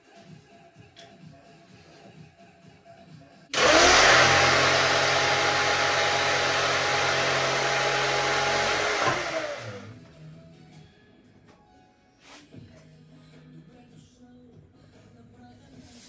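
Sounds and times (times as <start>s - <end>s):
electric power tool motor: 3.6s - 10.0s.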